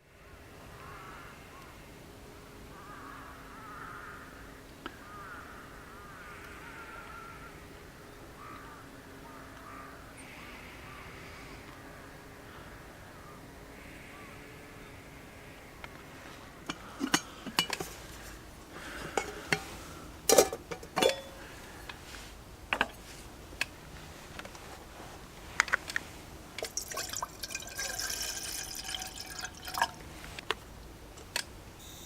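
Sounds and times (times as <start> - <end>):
glass and tableware clinking: 20.3 - 21.4
liquid pouring into a glass: 26.6 - 30.2.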